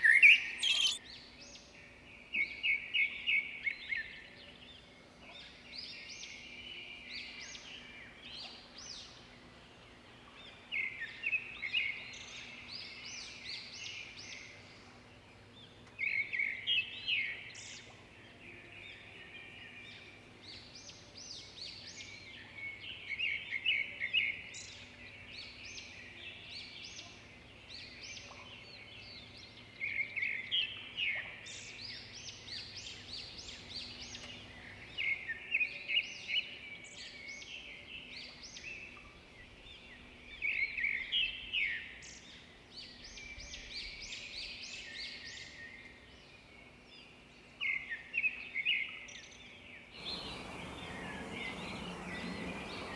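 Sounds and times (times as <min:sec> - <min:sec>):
songbirds chirping and singing: 0:00.0 - 0:52.9.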